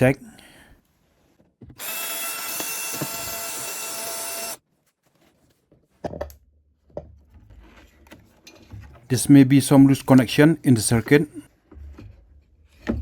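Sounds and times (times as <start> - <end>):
electric screwdriver running: 1.8 - 4.6.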